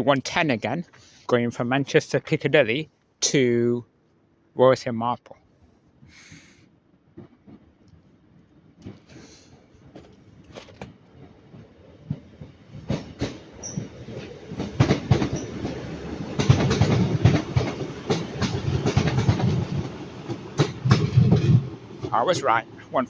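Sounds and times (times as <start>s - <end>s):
low train rumble: 7.1s - 23.0s
train wheels clicking over rail joints: 8.8s - 23.0s.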